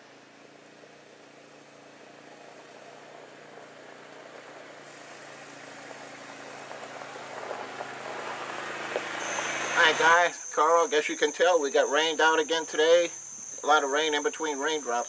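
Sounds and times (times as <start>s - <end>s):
engine idling: 0.0s - 10.9s
hiss: 1.0s - 11.1s.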